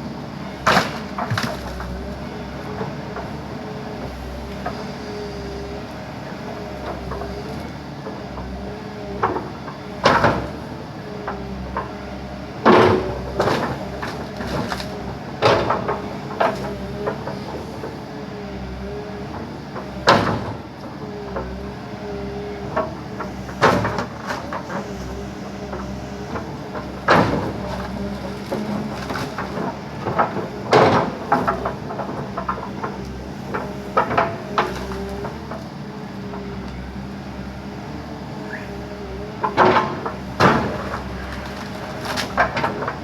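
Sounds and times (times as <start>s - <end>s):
backhoe engine whining: 0.0s - 43.0s
wood cracking and crunching: 23.2s - 35.7s, 39.6s - 43.0s.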